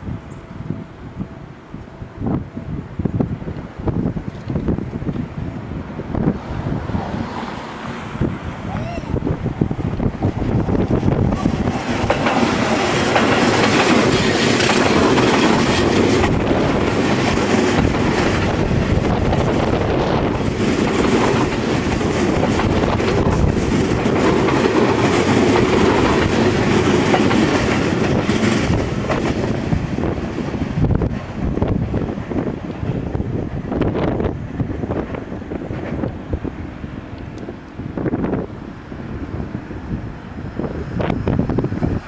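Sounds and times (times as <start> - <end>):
train wheels rumbling on rails: 0.0 - 42.0
wheels clacking over rail joints: 9.7 - 33.2.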